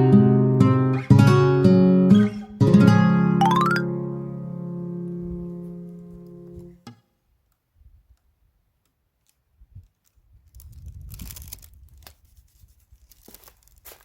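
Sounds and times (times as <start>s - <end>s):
small handling clicks: 7.5s - 10.6s
rustling tearing noise: 9.1s - 14.0s.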